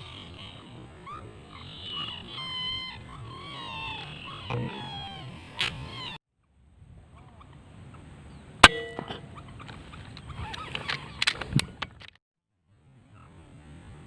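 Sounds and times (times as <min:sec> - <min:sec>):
metallic ring: 0:08.6 - 0:09.4.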